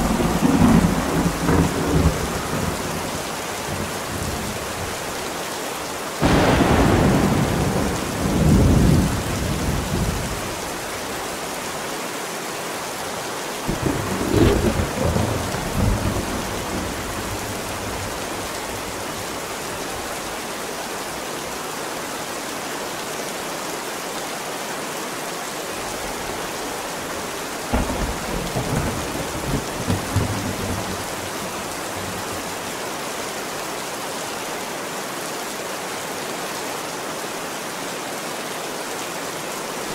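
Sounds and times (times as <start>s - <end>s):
thunder rolling: 0.0s - 4.7s, 6.2s - 10.5s, 13.7s - 19.1s, 27.7s - 32.5s
rain hissing: 0.0s - 11.8s, 12.6s - 22.6s, 25.6s - 33.7s.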